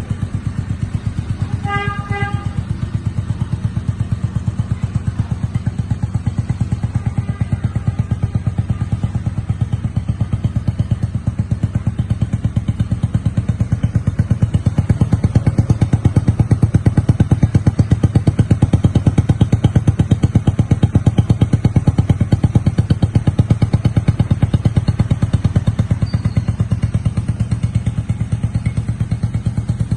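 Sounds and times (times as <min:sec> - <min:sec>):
motorcycle engine idling: 0:00.0 - 0:29.9.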